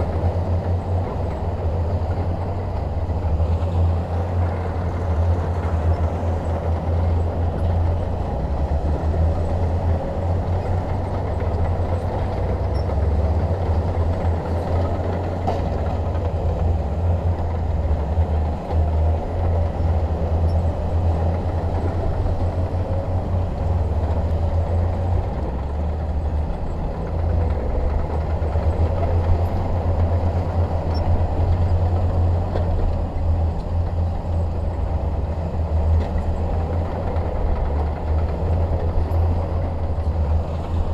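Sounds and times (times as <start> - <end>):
bulldozer diesel engine rumbling: 0.0 - 40.9.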